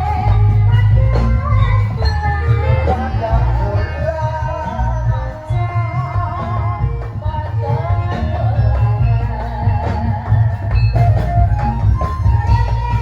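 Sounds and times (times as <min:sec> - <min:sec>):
heavy pulsing drum beat: 0:00.0 - 0:13.0
wavering melody: 0:00.0 - 0:13.0.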